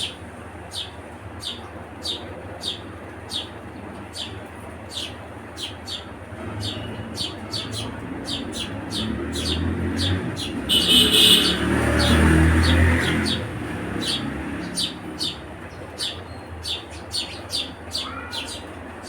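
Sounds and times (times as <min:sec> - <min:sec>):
sparrows chirping: 0:00.0 - 0:19.0.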